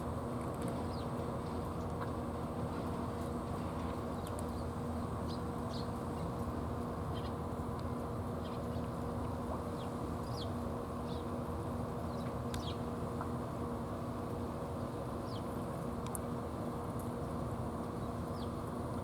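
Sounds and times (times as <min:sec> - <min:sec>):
faint hum: 0:00.0 - 0:19.0
small birds chirping: 0:04.2 - 0:06.0, 0:07.1 - 0:07.4, 0:09.7 - 0:11.3, 0:12.1 - 0:12.9, 0:14.8 - 0:15.6.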